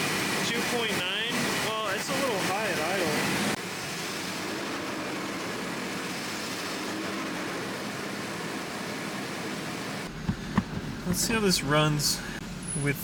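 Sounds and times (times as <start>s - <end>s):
car engine idling: 6.8s - 13.0s.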